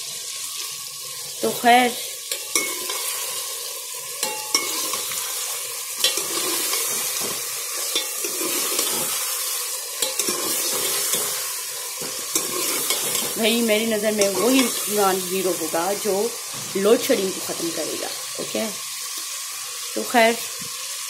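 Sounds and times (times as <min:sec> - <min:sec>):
food sizzling in oil: 0:00.0 - 0:21.0
ladle scraping a metal pot: 0:04.2 - 0:05.4, 0:06.0 - 0:13.4.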